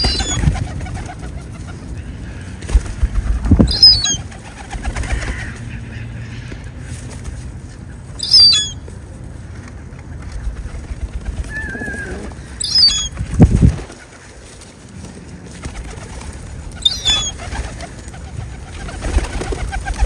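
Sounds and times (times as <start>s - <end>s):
bird chirps: 0.0s - 0.4s, 3.7s - 4.2s, 8.2s - 8.8s, 11.6s - 13.1s, 16.8s - 17.3s
bird warbled call: 0.0s - 0.5s, 3.7s - 4.2s, 8.2s - 8.8s, 11.4s - 13.2s, 16.8s - 17.9s
wing-flapping flutters: 0.0s - 5.8s, 9.2s - 20.0s.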